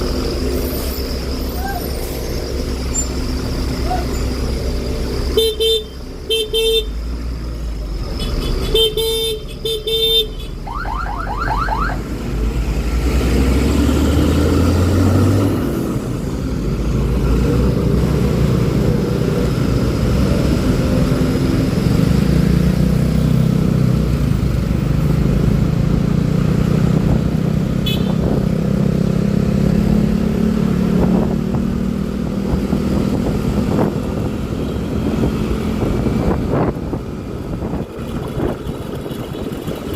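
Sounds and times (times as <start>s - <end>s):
road and wind noise: 0.0s - 39.9s
vehicle horns honking: 5.3s - 7.0s, 8.2s - 10.7s, 27.8s - 28.4s
scooter engine: 34.2s - 39.9s.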